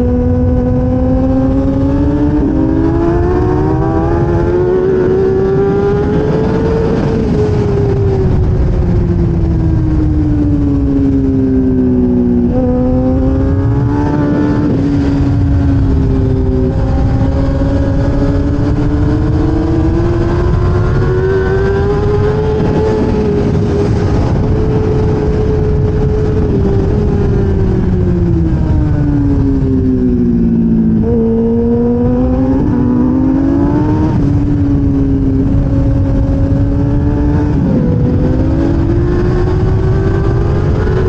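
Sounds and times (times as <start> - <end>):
motorcycle engine at speed: 0.0 - 41.0
wind rush: 0.0 - 41.0.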